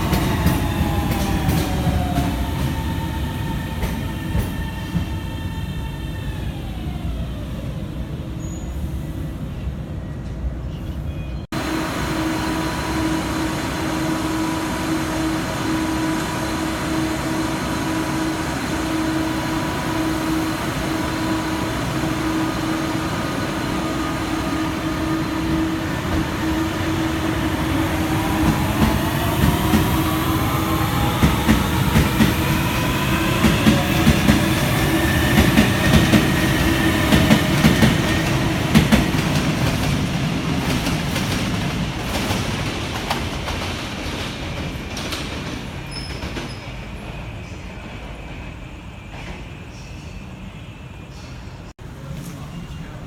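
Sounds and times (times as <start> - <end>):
train motor whine: 11.6 - 39.9.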